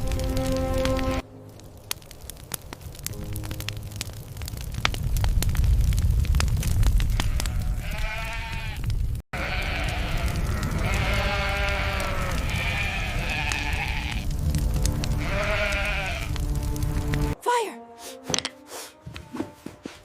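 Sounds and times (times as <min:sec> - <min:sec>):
low rumble: 0:03.0 - 0:07.2, 0:14.0 - 0:17.4
high bleating animal cries: 0:07.2 - 0:14.2, 0:15.2 - 0:16.4.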